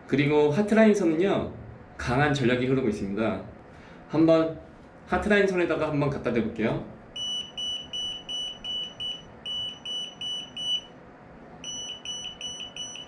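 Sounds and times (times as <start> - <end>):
voltage tester high beeps: 7.2 - 10.9, 11.6 - 13.0.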